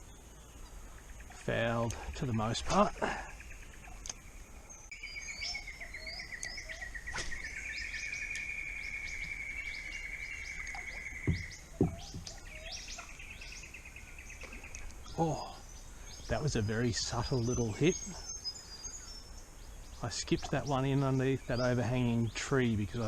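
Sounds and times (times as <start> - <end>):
birds chirping: 0.0 - 23.0
long pulsed bird trill: 0.0 - 23.0
short knocks: 11.2 - 12.5.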